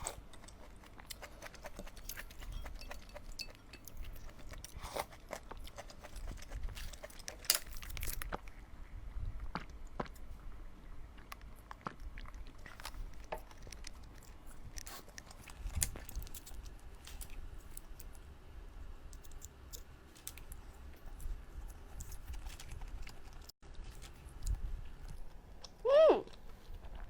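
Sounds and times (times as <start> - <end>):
person chewing: 0.0 - 8.7, 11.0 - 18.1.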